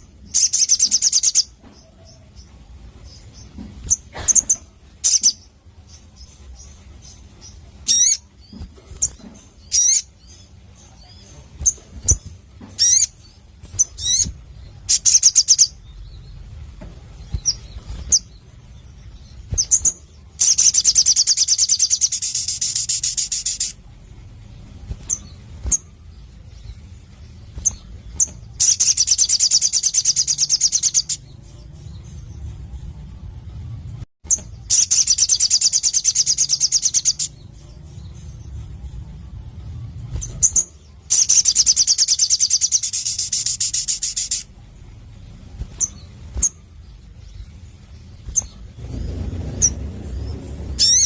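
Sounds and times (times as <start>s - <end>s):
bird singing high calls: 0.0s - 51.0s
bird fast trills: 3.1s - 23.9s, 40.1s - 51.0s.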